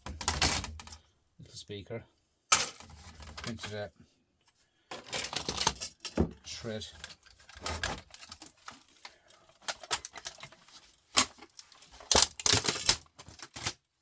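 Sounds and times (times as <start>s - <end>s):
laptop parts clicking and rattling: 4.9s - 13.9s.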